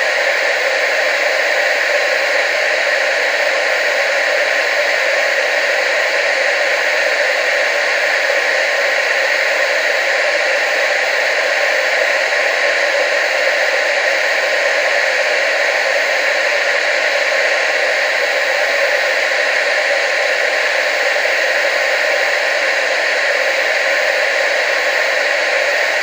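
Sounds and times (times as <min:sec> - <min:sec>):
television static hiss: 0:00.0 - 0:26.0.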